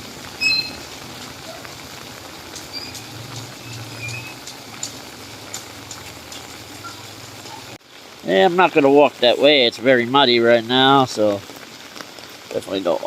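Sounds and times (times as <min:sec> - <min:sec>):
light rain hissing: 0:00.0 - 0:13.0
water drips clicking: 0:00.3 - 0:07.8.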